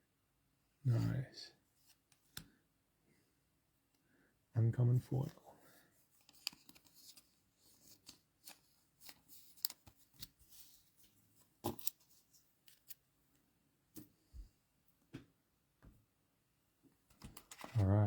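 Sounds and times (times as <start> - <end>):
trading cards clicking and rustling: 6.2 - 7.3.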